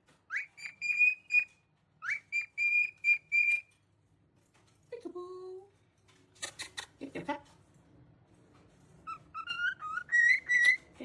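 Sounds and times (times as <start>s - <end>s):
parrot whistling: 0.3s - 3.6s, 9.1s - 10.8s.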